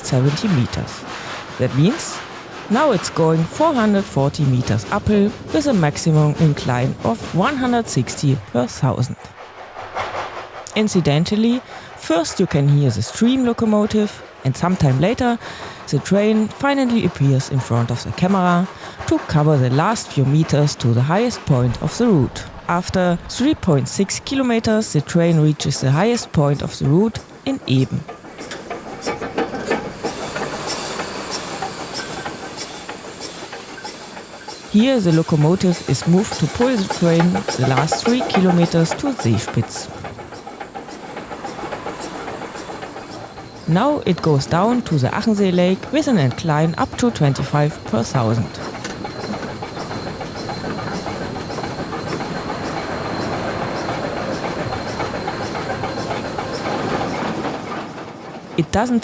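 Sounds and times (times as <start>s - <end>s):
steam hissing: 0.0s - 12.4s, 21.7s - 59.0s
steam locomotive moving slowly: 0.0s - 59.0s
regular clicking: 24.3s - 58.2s.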